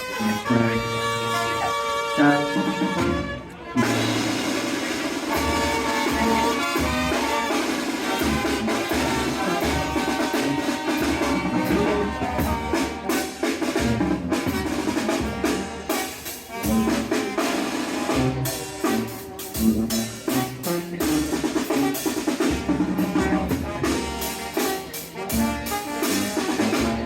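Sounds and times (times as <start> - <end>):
band music: 0.0 - 27.0.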